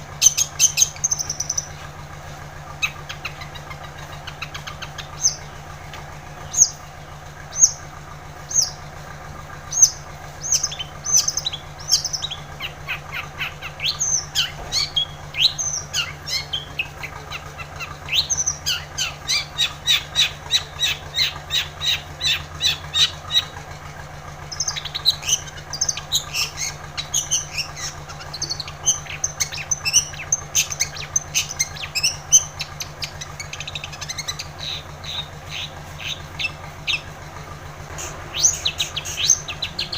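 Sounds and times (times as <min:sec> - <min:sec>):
bird chirping and singing: 0:00.0 - 0:01.9, 0:02.7 - 0:08.9, 0:09.5 - 0:39.9
steady low hum: 0:00.0 - 0:39.9.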